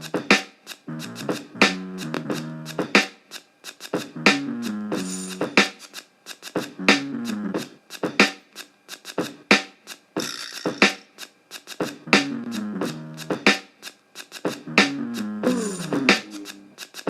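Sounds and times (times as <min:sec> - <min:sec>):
drum hits: 0:00.0 - 0:03.2, 0:03.9 - 0:05.9, 0:09.2 - 0:11.0, 0:14.4 - 0:16.6.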